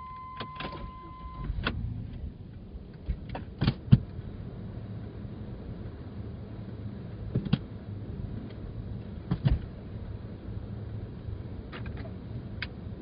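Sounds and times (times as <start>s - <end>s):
electronic beep: 0.0s - 1.5s
clicks and knocks in cabin: 3.0s - 4.1s, 9.2s - 9.7s.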